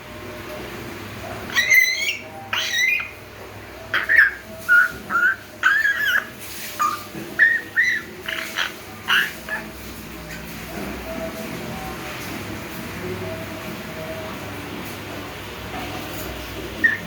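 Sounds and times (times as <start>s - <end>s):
parrot whistling: 1.4s - 10.5s, 16.8s - 17.0s.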